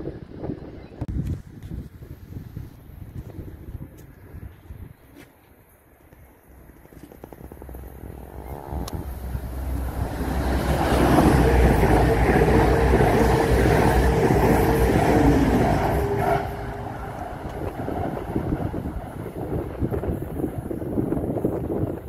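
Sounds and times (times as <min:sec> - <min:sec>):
steady whine: 0:07.2 - 0:20.4
diesel train passing: 0:07.4 - 0:22.0.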